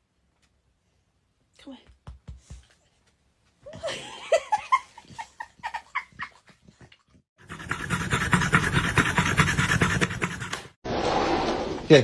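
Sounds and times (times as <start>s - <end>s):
dog panting heavily: 5.1s - 10.8s.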